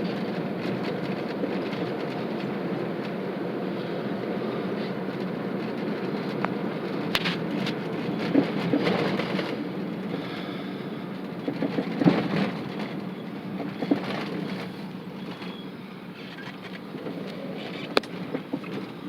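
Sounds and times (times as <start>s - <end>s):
vehicle rumble: 0.0s - 19.0s
knocks and rattles: 11.4s - 13.0s.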